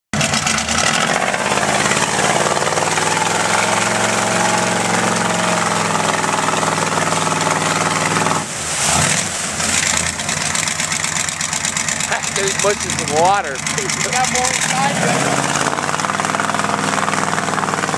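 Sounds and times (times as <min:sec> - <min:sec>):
truck engine running hard: 0:00.2 - 0:17.9.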